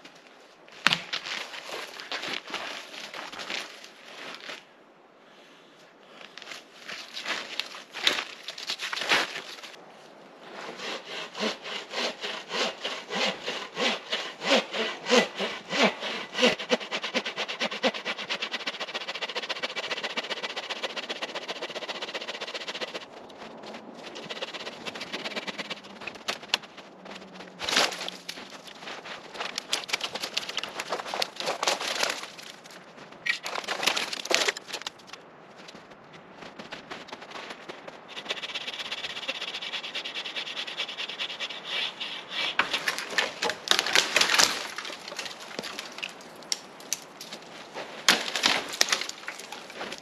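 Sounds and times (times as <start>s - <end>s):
hand saw cutting wood: 10.6s - 23.1s, 24.1s - 26.6s, 29.3s - 32.3s, 38.1s - 45.9s.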